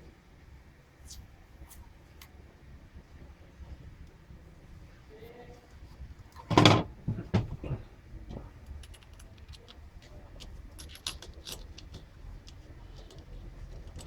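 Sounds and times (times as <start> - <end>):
small metallic clinks: 8.3 - 14.0.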